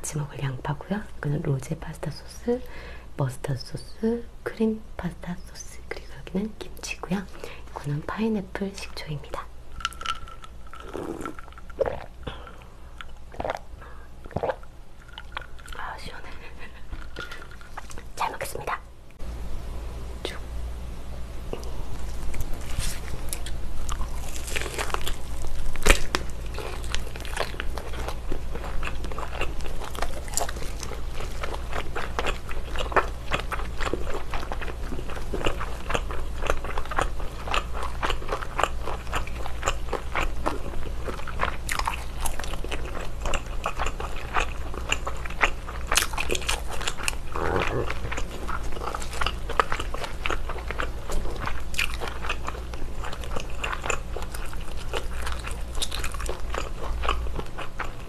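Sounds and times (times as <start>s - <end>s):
biting and chewing bacon: 9.7s - 12.4s, 13.0s - 18.2s, 21.6s - 58.0s.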